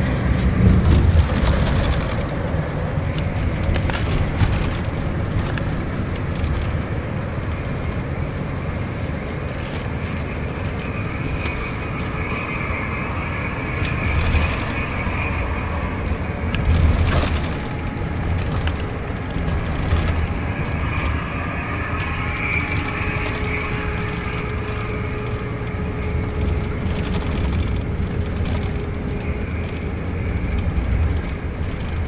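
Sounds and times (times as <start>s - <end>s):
bus engine drone: 0.0s - 32.0s
road rumble: 0.0s - 32.0s
light clicks and rattles: 13.7s - 32.0s.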